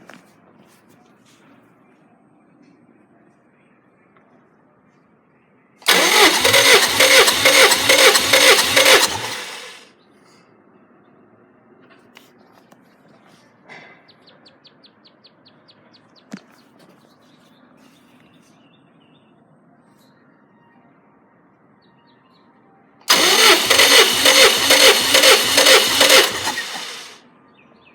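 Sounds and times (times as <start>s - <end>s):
engine cranking by starter: 5.8s - 9.9s, 23.1s - 27.2s.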